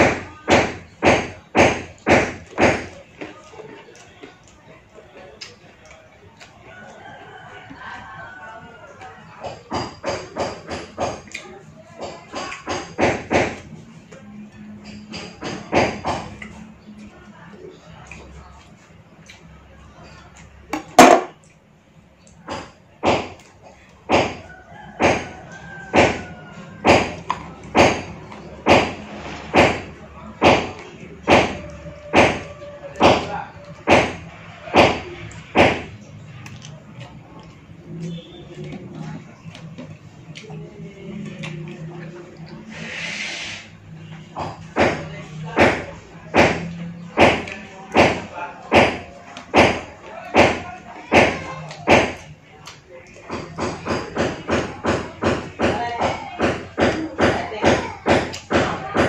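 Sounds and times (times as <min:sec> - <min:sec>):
cleaver chopping meat on board: 0:00.0 - 0:03.0, 0:09.4 - 0:11.4, 0:12.0 - 0:13.7, 0:15.1 - 0:16.4, 0:20.8 - 0:21.4, 0:22.5 - 0:36.0, 0:44.4 - 0:52.2, 0:53.3 - 0:59.0
cleaver chopping on cutting board: 0:20.8 - 0:21.3.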